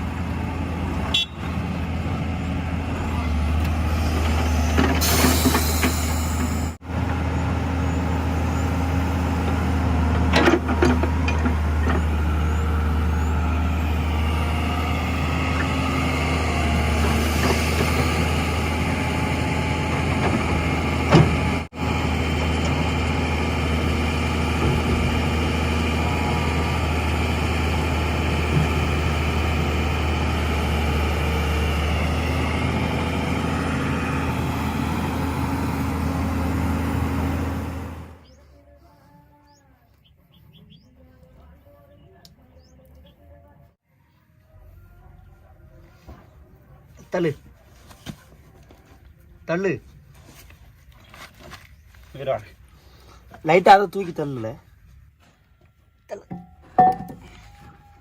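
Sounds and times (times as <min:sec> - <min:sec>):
heavy diesel engine humming: 0:00.0 - 0:39.0.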